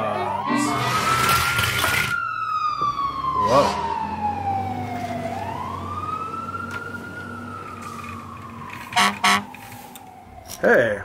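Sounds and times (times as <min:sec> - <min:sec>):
fire truck siren wailing: 0:00.0 - 0:11.0
loud horn blasts: 0:08.9 - 0:09.6.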